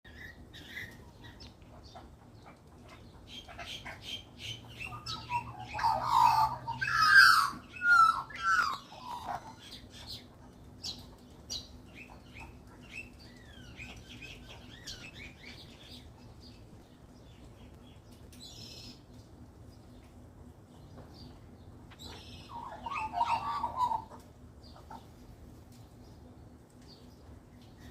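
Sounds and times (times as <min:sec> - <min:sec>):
magpies calling: 0:00.1 - 0:16.2, 0:21.9 - 0:25.2.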